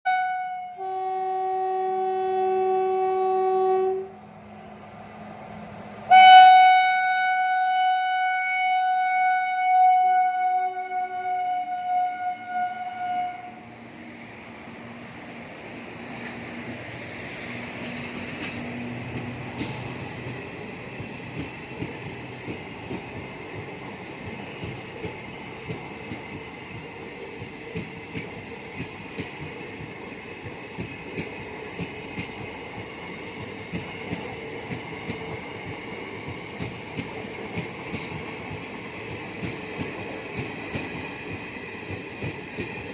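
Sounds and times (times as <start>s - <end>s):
train wheels clicking on rails: 14.1s - 42.9s.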